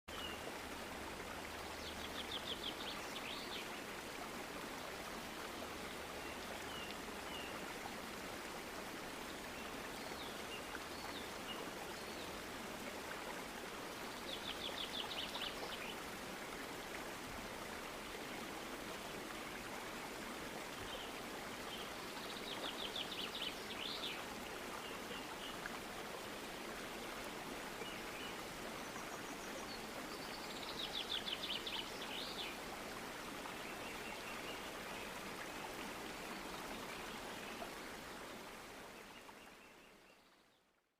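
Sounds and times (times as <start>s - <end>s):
running water: 0.1s - 40.2s.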